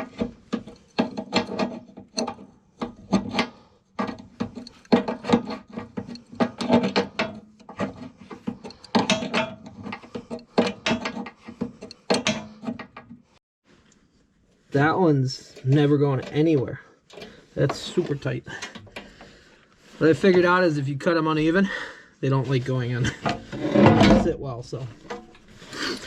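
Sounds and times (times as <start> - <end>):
hand tool rasping and scraping: 0.0 - 13.2, 22.3 - 26.0.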